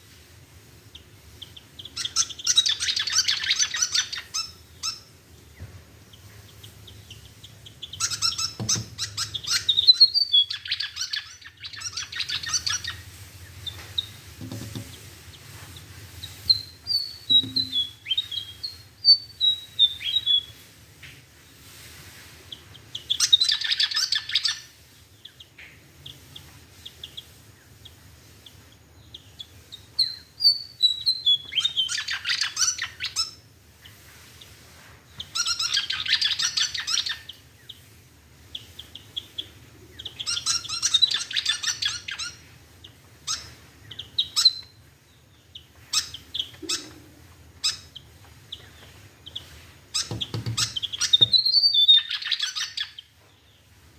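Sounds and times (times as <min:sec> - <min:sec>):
bird chirping: 0:00.9 - 0:20.6, 0:22.5 - 0:37.9, 0:38.5 - 0:53.7
bird twittering song: 0:01.0 - 0:15.5, 0:16.2 - 0:20.5, 0:22.5 - 0:34.0, 0:38.5 - 0:53.7.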